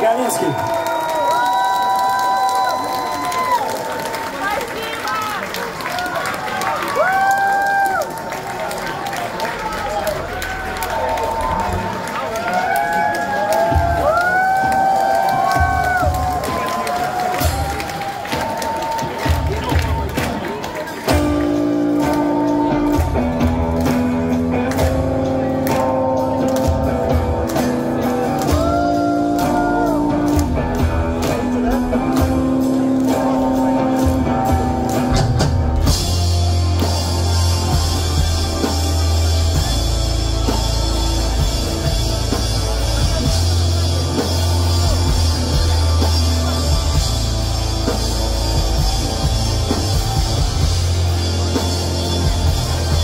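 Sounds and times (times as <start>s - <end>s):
drums: 0.0s - 53.0s
live pop-punk band: 12.6s - 53.0s.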